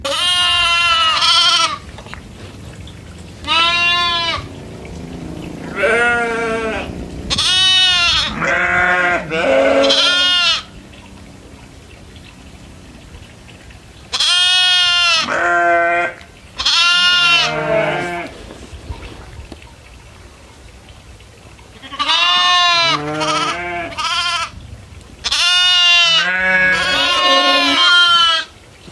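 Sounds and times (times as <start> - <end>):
goats bleating: 0.0 - 2.0, 3.4 - 4.6, 5.3 - 10.8, 14.1 - 18.4, 21.8 - 24.5, 25.2 - 28.5.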